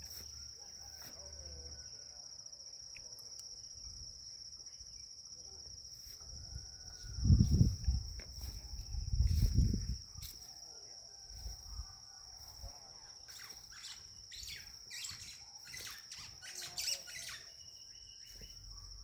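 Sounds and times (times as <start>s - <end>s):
high-pitched insect buzz: 12.4s - 19.0s
birds calling: 13.4s - 18.6s.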